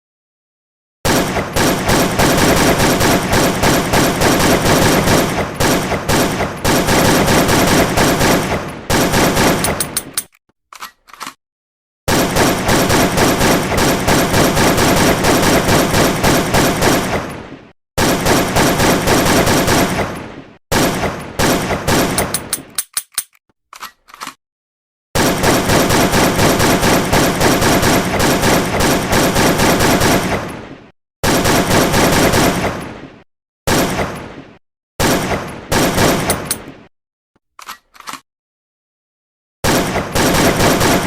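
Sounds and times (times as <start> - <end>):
automatic gunfire: 1.1 - 10.0, 12.1 - 17.3, 18.0 - 20.1, 20.7 - 22.5, 25.2 - 30.5, 31.2 - 32.7, 35.0 - 36.6, 39.6 - 41.0
single gunshots: 1.1 - 10.0, 25.2 - 36.9, 39.6 - 41.0.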